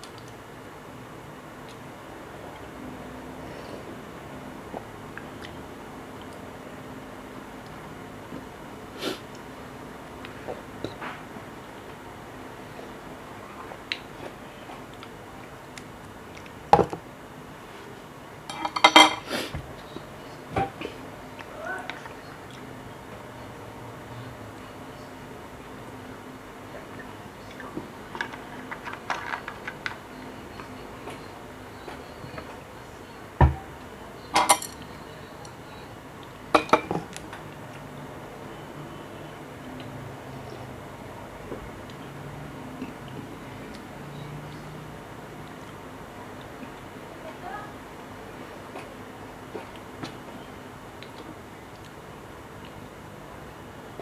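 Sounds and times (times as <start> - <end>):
utensils clinking on tableware: 18.5 - 19.3, 34.3 - 34.9.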